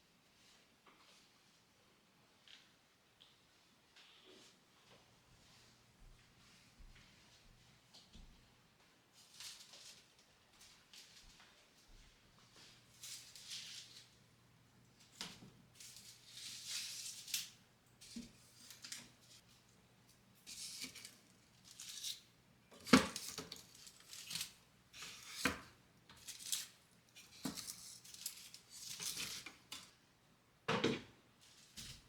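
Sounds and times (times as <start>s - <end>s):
rustling and scraping: 15.0s - 19.7s, 20.4s - 29.9s.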